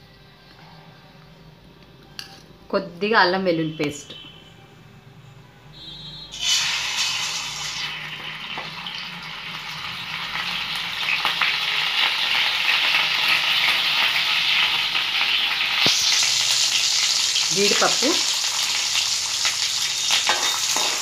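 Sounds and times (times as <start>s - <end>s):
paste sizzling in hot oil: 6.3s - 21.0s.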